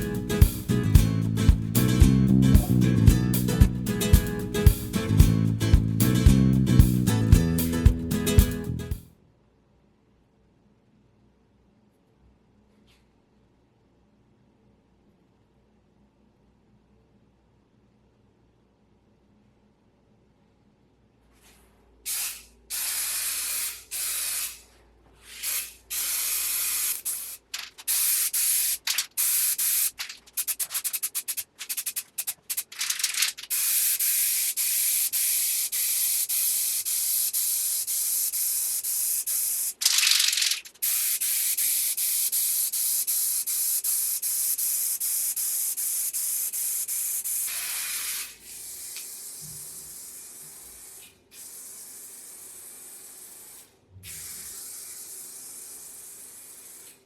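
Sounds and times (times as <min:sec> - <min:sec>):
pressurised spray hissing: 0:22.1 - 0:24.7, 0:25.3 - 0:57.0.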